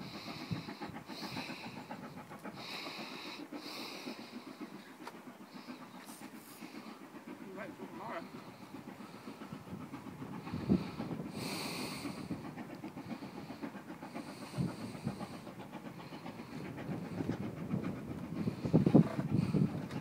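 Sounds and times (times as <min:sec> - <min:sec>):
steam hissing: 0:00.0 - 0:20.0
wheels rumbling on rail: 0:00.0 - 0:20.0.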